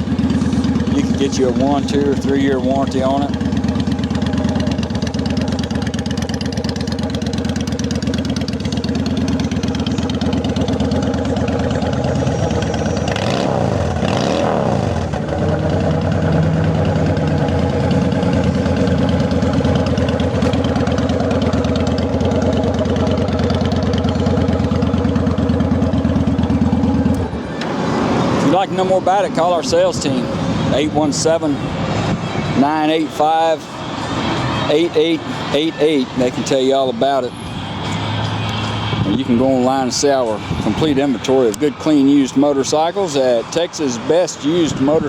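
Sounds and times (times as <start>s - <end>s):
motorcycle engine idling and revving: 0.0s - 45.0s.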